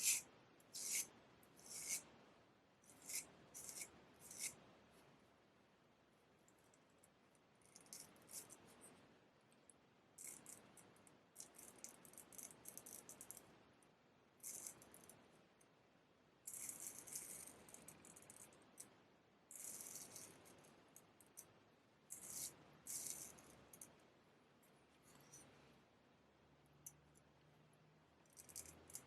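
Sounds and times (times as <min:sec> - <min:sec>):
straight razor scraping: 0:00.0 - 0:02.1, 0:02.9 - 0:04.6, 0:22.1 - 0:23.5.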